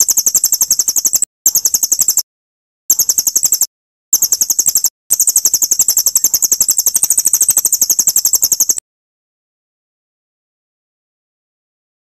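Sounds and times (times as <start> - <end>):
songbird chattering trill: 0.0 - 2.2, 2.9 - 8.8.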